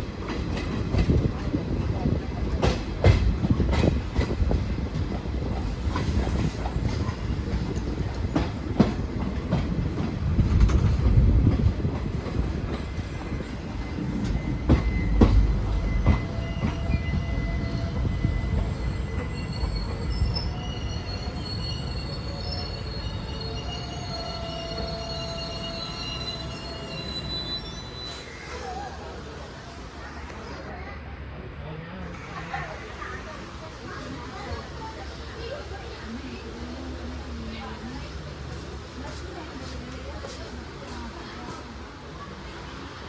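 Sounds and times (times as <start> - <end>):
train rumbling on rails: 0.0 - 43.0
high-pitched wheel squeal: 13.9 - 29.2.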